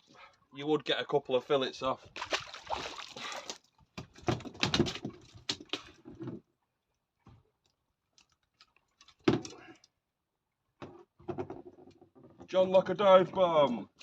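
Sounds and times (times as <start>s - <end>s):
fish splashing into water: 2.2s - 3.6s.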